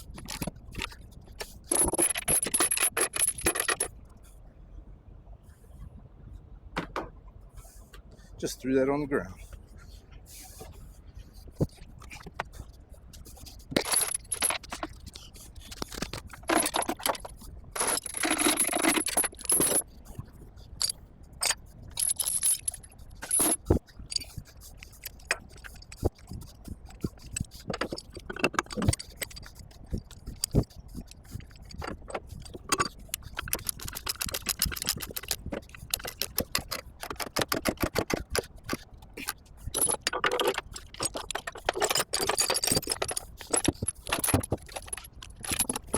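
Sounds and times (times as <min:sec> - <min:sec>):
steel chains jangling and clanking: 0:00.1 - 0:01.0, 0:01.6 - 0:03.9, 0:13.3 - 0:19.9, 0:20.8 - 0:45.9.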